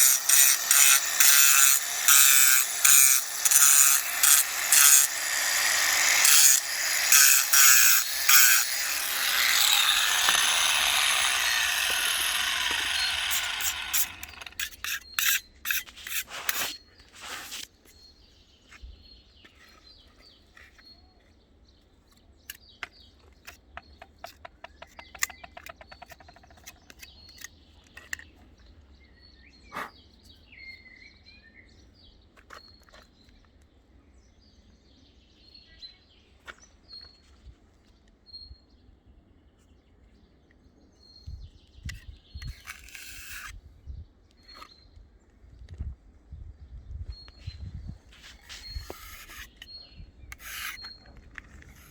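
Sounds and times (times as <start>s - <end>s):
harsh rubbing or sawing: 0.0s - 17.7s, 48.2s - 49.6s, 50.4s - 51.0s.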